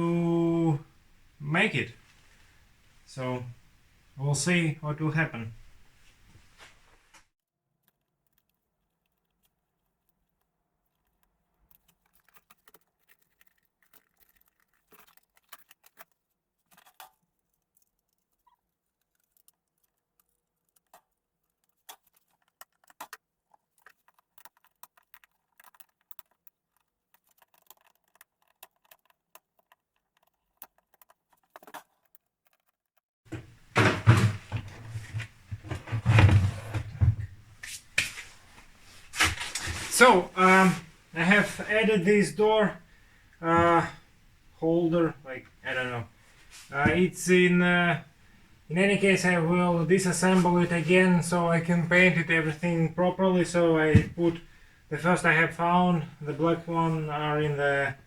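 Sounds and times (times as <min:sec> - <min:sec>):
rustling handling noise: 0:05.2 - 0:07.3, 0:10.2 - 0:58.0.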